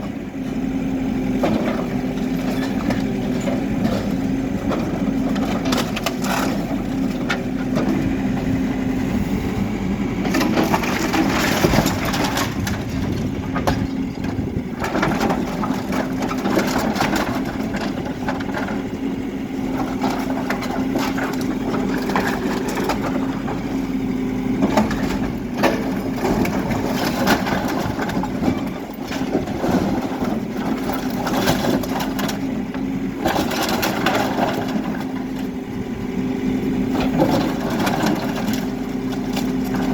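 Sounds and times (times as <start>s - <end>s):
diesel engine running: 0.0s - 39.9s
rubble cracking and crunching: 10.2s - 18.9s.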